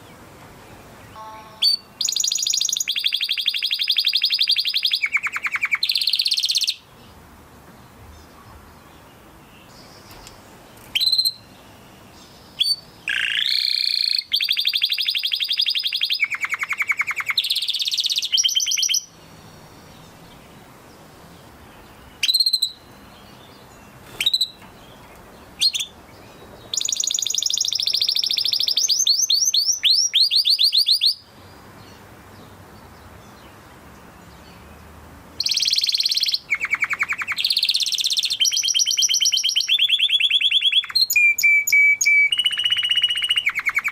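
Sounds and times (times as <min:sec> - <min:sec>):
canary singing trills: 0:00.0 - 0:07.2, 0:08.2 - 0:43.9
single bird chirps: 0:01.1 - 0:06.8, 0:10.0 - 0:11.5, 0:12.6 - 0:19.1, 0:23.9 - 0:26.0.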